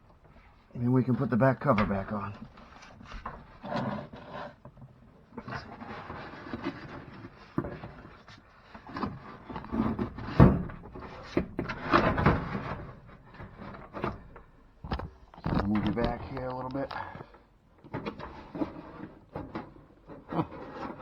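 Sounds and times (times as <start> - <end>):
plastic filter knocking and clattering: 9.6 - 17.2.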